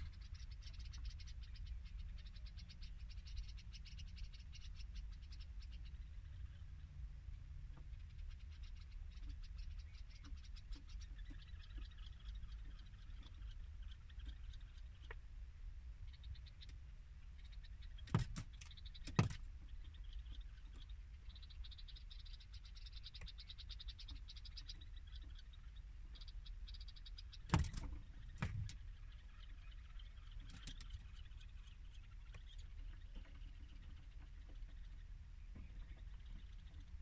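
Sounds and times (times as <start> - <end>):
birds tapping on a mirror: 7.6 - 15.2, 16.1 - 25.5, 26.1 - 37.0
faint fast rattle of ticks: 16.1 - 37.0.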